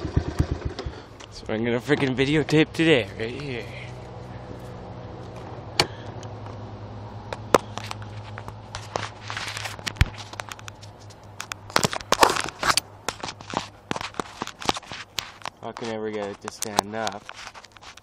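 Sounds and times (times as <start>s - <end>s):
engine idling: 0.0s - 12.2s
crunching footsteps: 7.3s - 18.0s.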